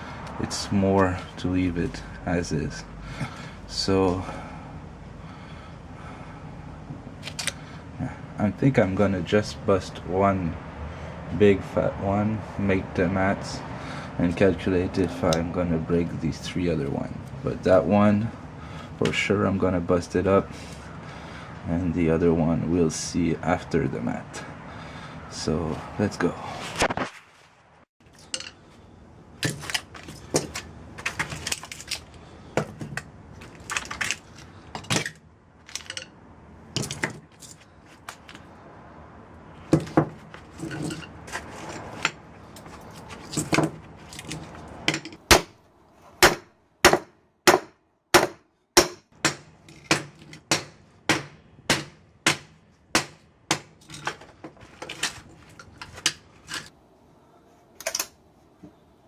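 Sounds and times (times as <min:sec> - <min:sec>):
metal scraping and clatter: 0:40.3 - 0:45.2, 0:53.8 - 0:56.7
hammer striking metal: 0:46.2 - 0:53.8.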